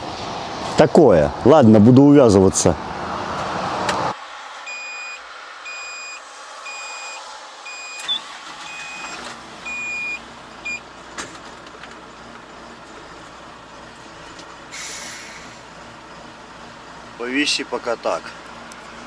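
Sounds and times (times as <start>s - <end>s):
vehicle reversing alarm beeps: 4.7s - 10.9s.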